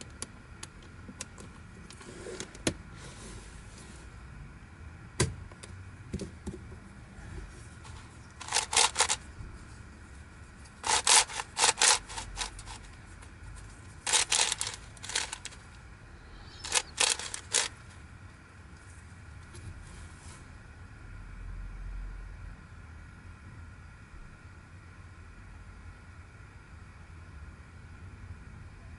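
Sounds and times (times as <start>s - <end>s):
plastic puzzle clicking: 8.4s - 9.2s, 10.8s - 12.8s, 14.1s - 15.6s, 16.6s - 17.7s.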